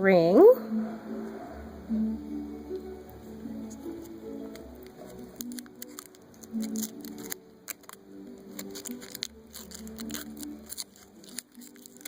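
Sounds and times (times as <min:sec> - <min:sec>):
soft background music: 0:00.0 - 0:12.0
foil wrapper crinkling: 0:03.6 - 0:12.0.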